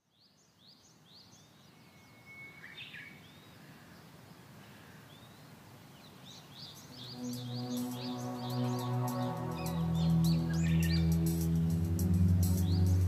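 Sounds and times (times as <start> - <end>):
small birds chirping: 0.0 - 13.0
low steady hum: 6.9 - 13.0.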